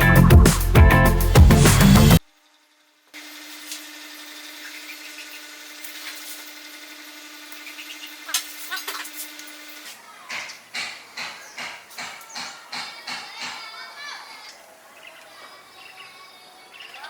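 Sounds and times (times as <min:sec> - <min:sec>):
power tool sanding wood: 0:03.2 - 0:12.8.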